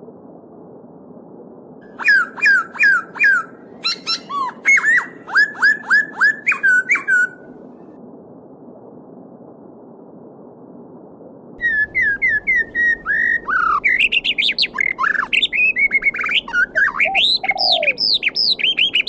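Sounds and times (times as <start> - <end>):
songbird whistling: 1.9 - 7.4, 11.6 - 19.0.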